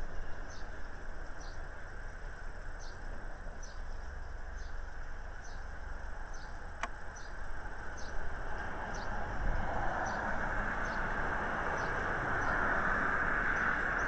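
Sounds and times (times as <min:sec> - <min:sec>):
small bird chirping: 0:00.3 - 0:01.9, 0:02.6 - 0:08.3.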